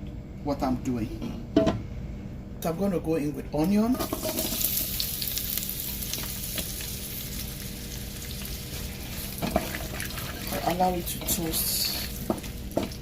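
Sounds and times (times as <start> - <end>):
onions sizzling in oil: 3.9 - 13.0.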